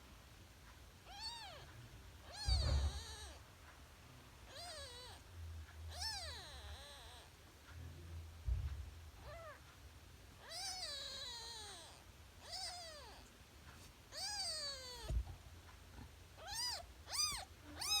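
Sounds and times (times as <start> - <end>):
kitten mewing: 1.1 - 3.4, 4.5 - 5.2, 5.9 - 7.3, 9.2 - 9.6, 10.4 - 13.3, 14.1 - 15.3, 16.4 - 18.0
brief thump: 2.4 - 3.0, 8.4 - 8.9, 15.0 - 15.4.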